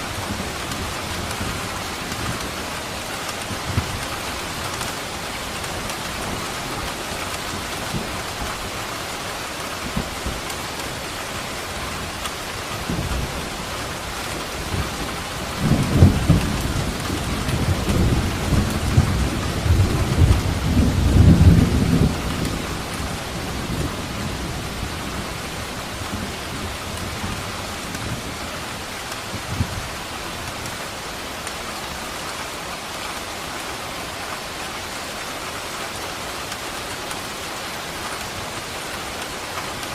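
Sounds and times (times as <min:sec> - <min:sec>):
heavy rain: 0:00.0 - 0:39.9
thunder rumbling: 0:12.7 - 0:30.0.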